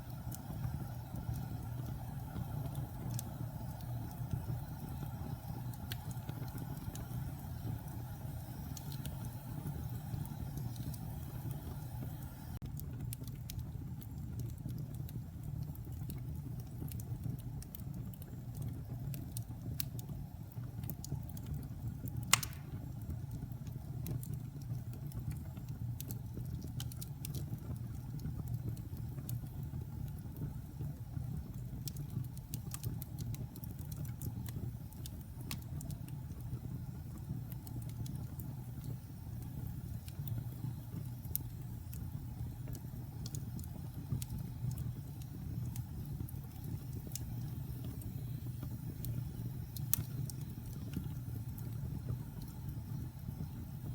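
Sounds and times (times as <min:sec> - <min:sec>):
wood fire crackling: 0:00.0 - 0:53.9
sharp pop from fire: 0:22.3 - 0:23.0.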